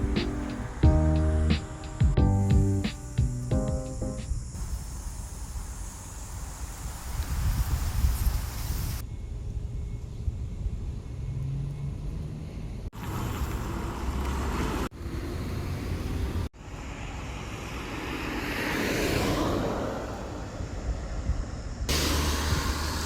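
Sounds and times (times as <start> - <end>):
street traffic: 0.0 - 7.2, 9.3 - 23.0
wind rumble on microphone: 6.8 - 13.6, 18.6 - 23.0
vehicle passing: 11.2 - 20.7, 21.9 - 23.0.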